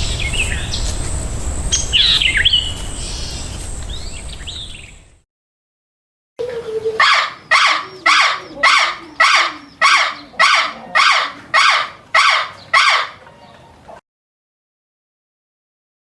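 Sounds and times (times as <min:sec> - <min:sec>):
animal calling harshly: 0:06.6 - 0:13.3.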